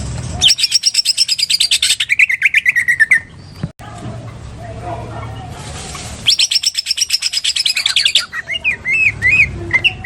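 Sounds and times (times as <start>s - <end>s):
bird singing with chattering trill: 0.4s - 3.7s, 6.2s - 10.0s.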